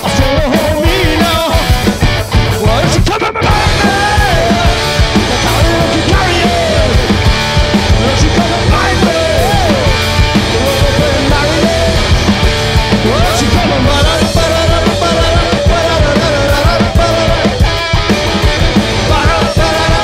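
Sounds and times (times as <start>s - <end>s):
live punk blues rock band: 0.0s - 20.0s
sliding lead guitar lines: 0.0s - 20.0s.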